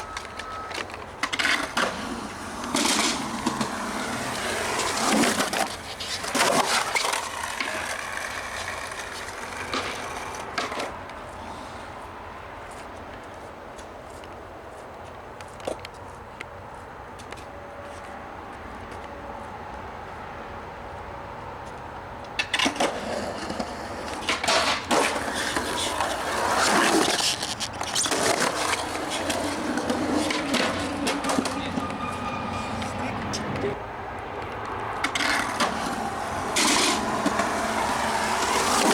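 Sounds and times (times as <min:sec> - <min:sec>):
skateboard clacks: 0:00.0 - 0:11.3, 0:22.2 - 0:38.9
skateboard rolling: 0:00.0 - 0:14.2, 0:22.3 - 0:38.9.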